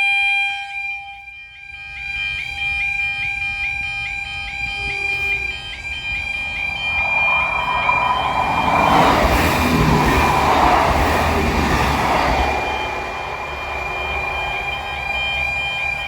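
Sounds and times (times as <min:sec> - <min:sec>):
level crossing warning alarm: 0:00.1 - 0:16.0
approaching train rumble: 0:05.6 - 0:16.0.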